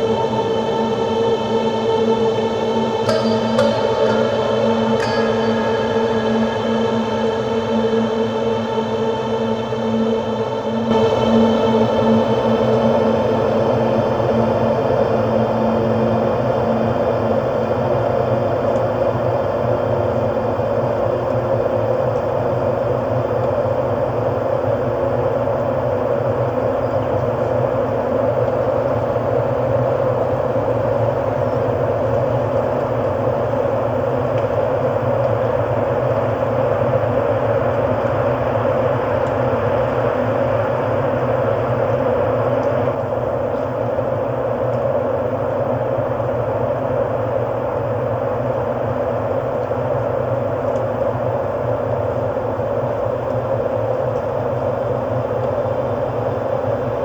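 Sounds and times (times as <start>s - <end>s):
ambient drone music: 0.0s - 18.1s.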